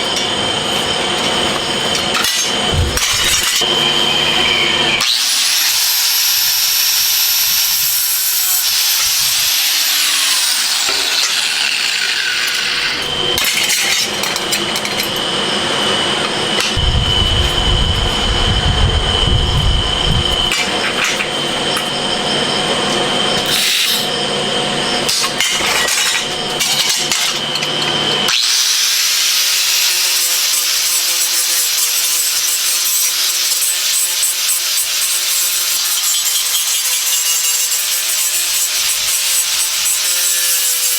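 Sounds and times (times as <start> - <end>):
power tool whining: 0.1 - 29.8
deeper rumble: 2.7 - 3.6, 16.8 - 20.6.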